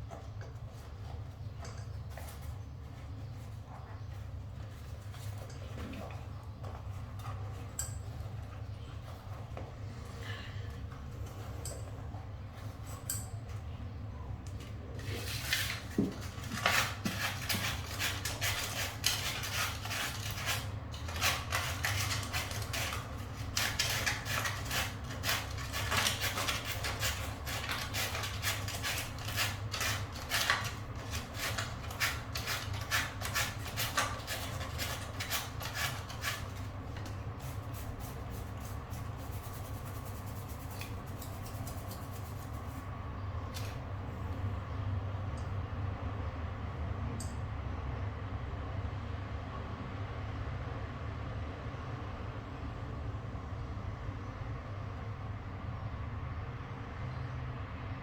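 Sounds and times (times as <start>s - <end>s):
steady low hum: 0.0s - 48.3s
hand scraping strokes: 14.9s - 42.9s.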